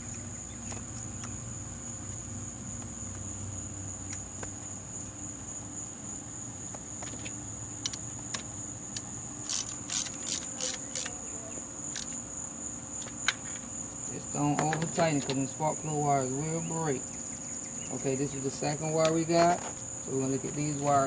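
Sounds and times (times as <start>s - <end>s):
cricket trill: 0.0s - 21.0s
sharp metallic clicks: 8.9s - 11.2s, 11.9s - 12.2s.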